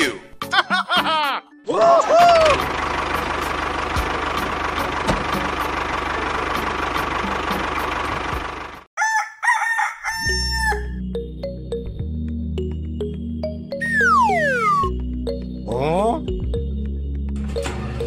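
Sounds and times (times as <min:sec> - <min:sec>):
music: 0:00.0 - 0:08.4, 0:10.3 - 0:18.0
tractor engine chugging: 0:02.3 - 0:08.9
rooster crowing: 0:09.0 - 0:11.0.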